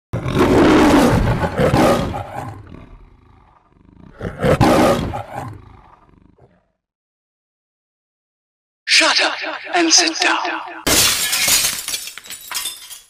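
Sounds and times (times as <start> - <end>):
loud roars: 0.2 - 6.1.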